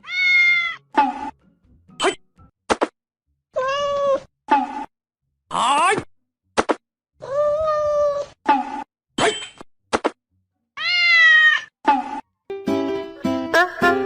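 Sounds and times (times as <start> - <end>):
cat meowing: 0.0 - 0.9, 3.6 - 4.3, 10.8 - 11.7
music with plucked notes: 12.5 - 14.0.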